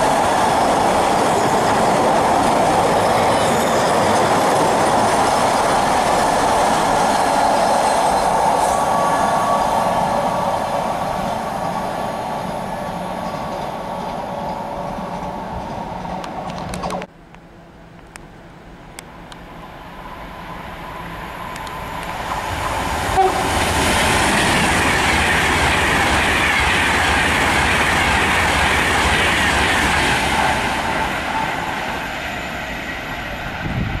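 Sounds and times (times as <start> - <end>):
electric train rushing past: 0.0 - 17.1, 19.1 - 34.0
wheels clicking over rail joints: 13.0 - 17.1.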